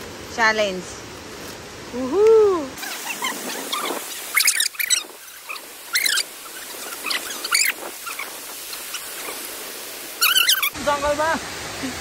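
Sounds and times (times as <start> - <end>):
steady background hiss: 0.0 - 12.0
birds warbling chirps: 2.8 - 10.8.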